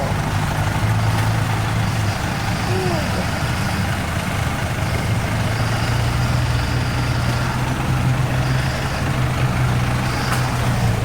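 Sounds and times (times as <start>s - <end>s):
tyre road noise: 0.0s - 11.0s
vehicle engine running: 0.0s - 11.0s.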